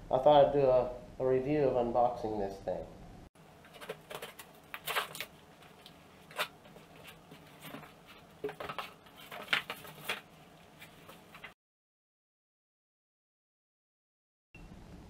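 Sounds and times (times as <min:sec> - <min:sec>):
packaging rustling: 0:03.5 - 0:11.6.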